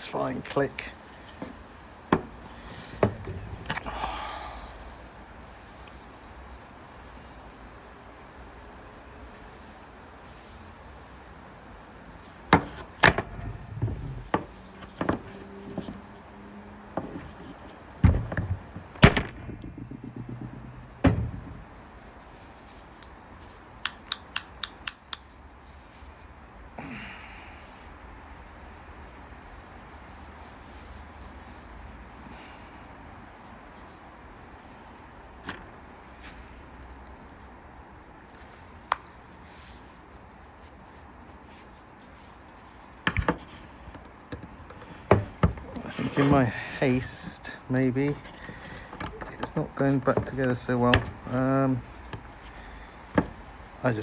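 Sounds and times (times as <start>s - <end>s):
plastic parts clicking and knocking: 1.3s - 3.9s, 12.5s - 16.1s, 16.9s - 22.0s, 43.0s - 54.0s
bird chirping: 10.3s - 22.9s.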